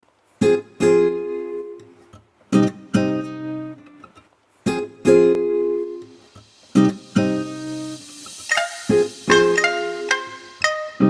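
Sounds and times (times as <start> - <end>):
strummed string chords: 5.2 - 11.0.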